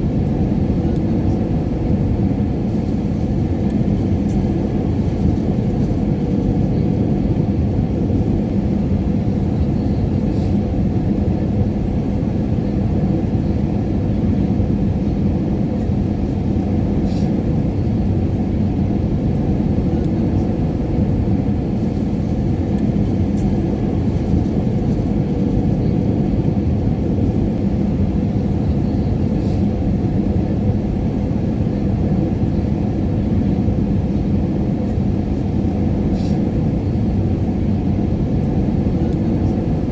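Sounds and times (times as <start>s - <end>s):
airliner cabin engine drone: 0.0s - 39.9s.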